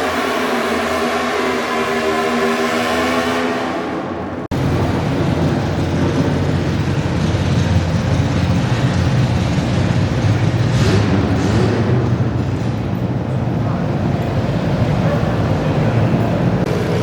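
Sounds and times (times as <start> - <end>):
tractor engine running rough: 4.5 - 17.0.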